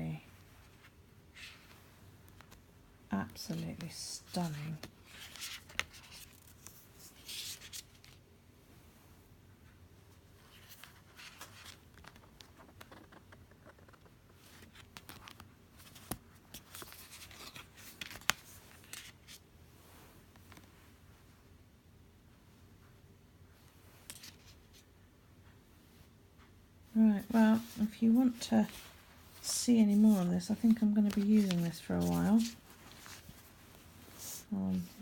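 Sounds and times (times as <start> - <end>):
cards rustling and sliding: 3.4 - 8.2, 10.5 - 19.4, 24.0 - 24.8, 27.2 - 35.0.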